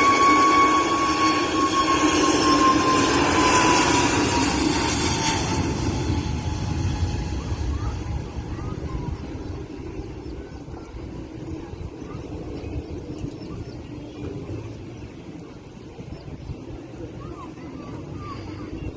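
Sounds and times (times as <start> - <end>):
thin high whine: 0.0 - 9.0
jet engines rumbling: 0.0 - 18.9.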